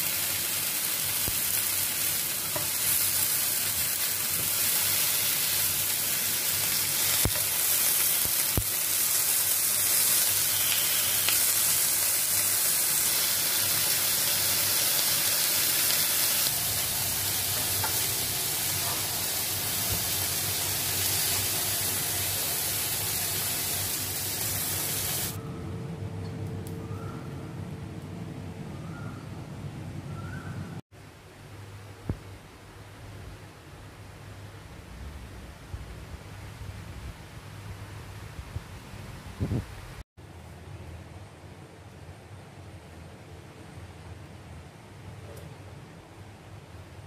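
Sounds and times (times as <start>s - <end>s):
meat sizzling in frying pan: 0.0s - 25.4s.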